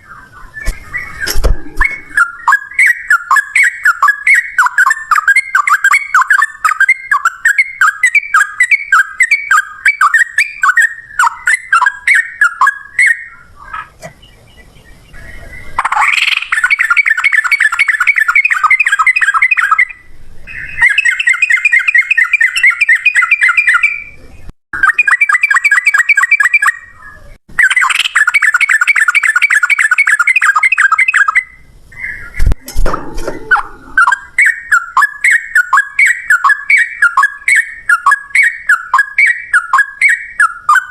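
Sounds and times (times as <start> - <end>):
bird singing chattering notes: 0.0 - 27.0, 27.6 - 40.9
low thump: 0.6 - 2.2.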